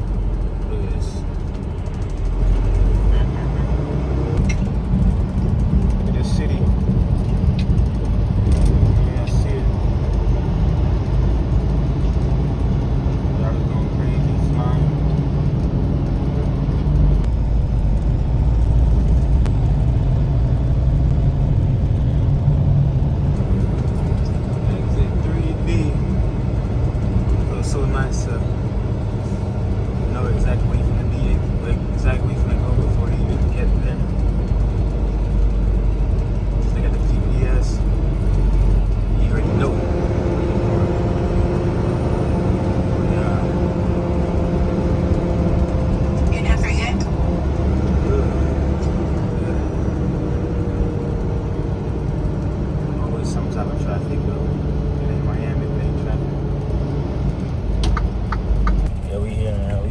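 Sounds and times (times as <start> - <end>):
diesel truck engine rumbling: 0.0 - 59.9
road noise: 0.0 - 59.9.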